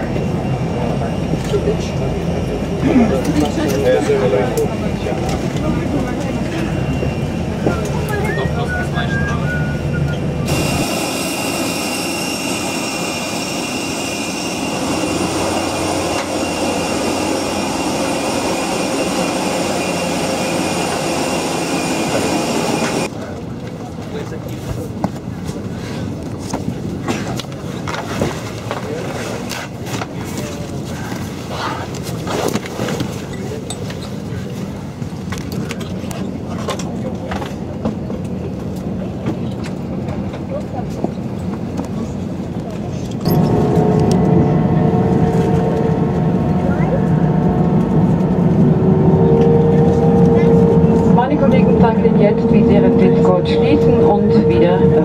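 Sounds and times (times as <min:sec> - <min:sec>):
jet aircraft roar: 0:00.0 - 0:32.3, 0:32.9 - 0:55.0
high whining tones: 0:06.7 - 0:23.1, 0:43.3 - 0:55.0.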